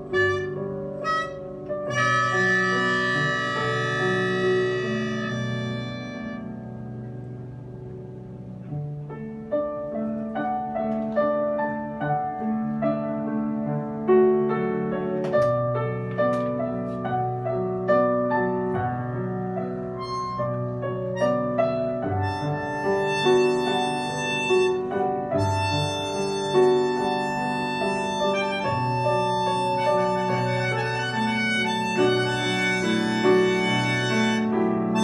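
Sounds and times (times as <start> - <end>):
bright sustained notes: 0.0 - 7.0
piano-like notes: 0.0 - 35.0.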